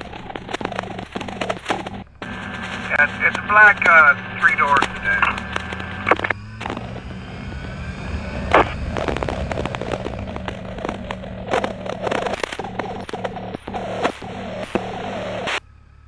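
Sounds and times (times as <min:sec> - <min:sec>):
sharp clicks and crackles: 0:00.0 - 0:15.6
motorcycle engine running: 0:04.1 - 0:15.5.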